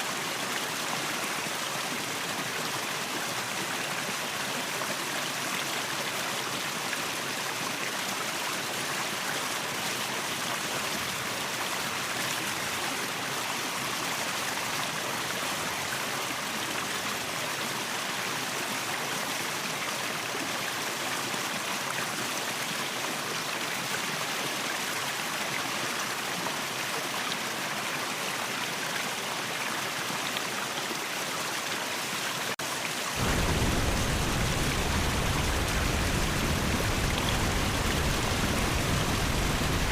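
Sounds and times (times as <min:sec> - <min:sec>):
waterfall rushing: 0:32.8 - 0:39.9.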